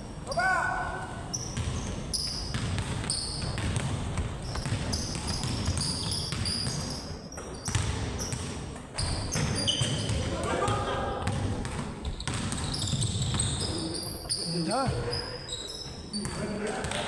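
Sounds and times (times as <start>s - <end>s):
basketball bouncing on court: 1.3s - 14.0s.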